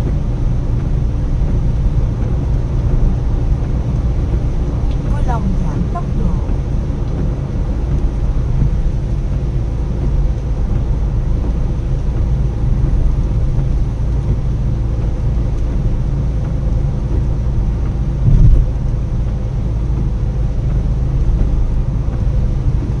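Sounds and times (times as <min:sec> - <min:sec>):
car engine and road noise: 0:00.0 - 0:23.0
loud low thump: 0:18.2 - 0:18.8.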